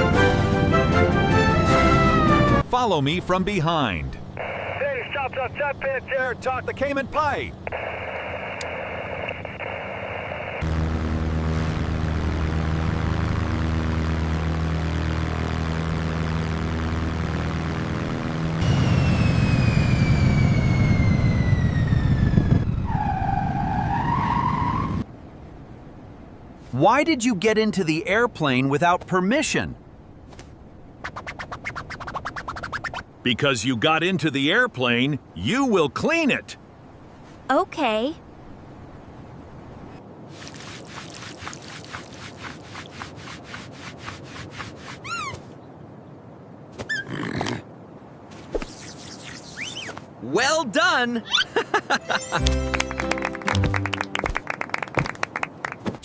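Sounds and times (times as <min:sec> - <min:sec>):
low engine rumble: 0:10.6 - 0:22.9
cartoon scrubbing strokes: 0:31.0 - 0:33.1, 0:40.3 - 0:45.4
short squeak: 0:44.9 - 0:45.5, 0:46.8 - 0:47.1
cartoon whistling tone: 0:45.0 - 0:45.4.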